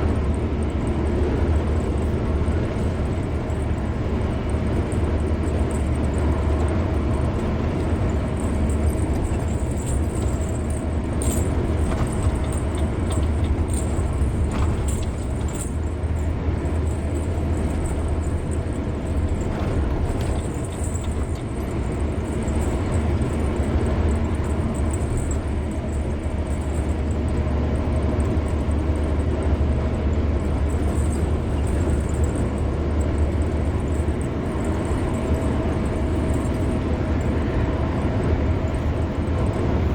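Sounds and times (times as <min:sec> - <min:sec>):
car engine and tyres rumbling: 0:00.0 - 0:39.9
faint ticks and rattles: 0:00.1 - 0:37.4.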